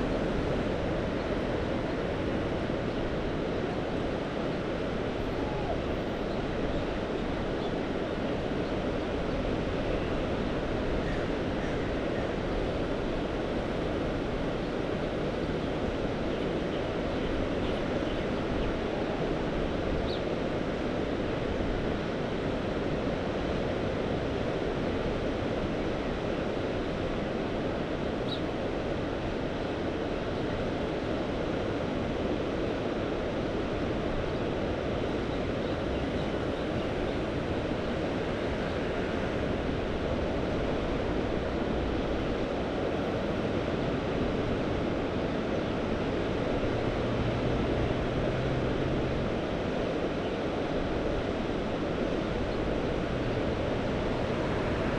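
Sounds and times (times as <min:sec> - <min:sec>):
sea surf rushing: 0:20.5 - 0:54.9.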